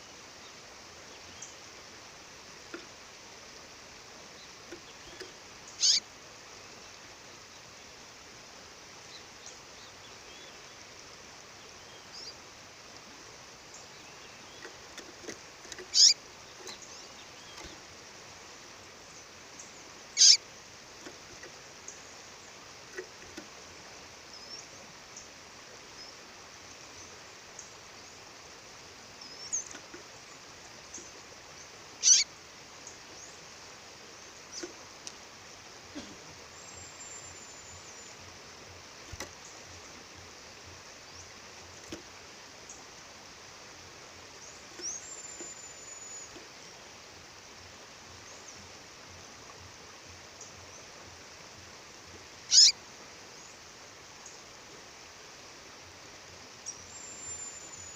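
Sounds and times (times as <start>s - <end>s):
bird chirping: 4.3s - 6.1s, 11.6s - 12.4s, 13.7s - 18.0s, 19.1s - 20.4s, 29.2s - 33.4s, 44.4s - 46.7s, 52.5s - 52.8s
high thin bird whistles: 5.8s - 6.0s, 15.9s - 16.2s, 20.2s - 20.4s, 52.5s - 52.8s.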